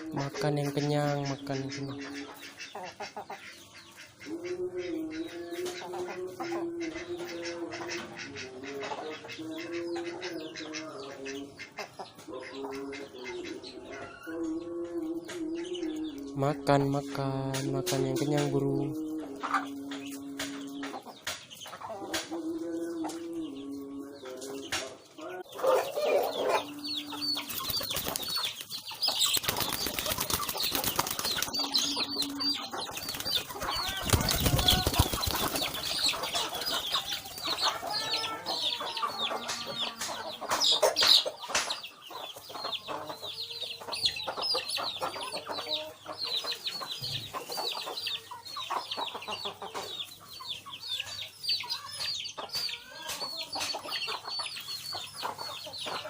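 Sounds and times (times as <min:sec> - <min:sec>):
pigeons cooing: 0:00.0 - 0:56.0
high-pitched bird chirps: 0:25.8 - 0:40.0
wings flapping: 0:27.4 - 0:37.8.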